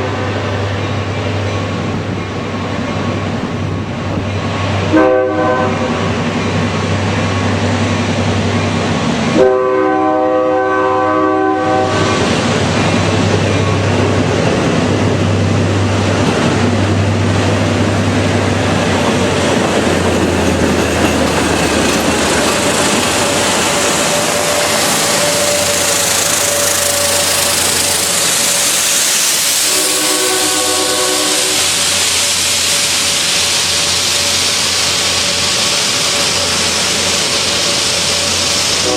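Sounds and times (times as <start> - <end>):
train engine hum: 0.0 - 38.9
train wheels rolling hiss: 0.0 - 38.9
train horn chord: 4.9 - 5.9, 9.4 - 12.3, 29.7 - 31.8.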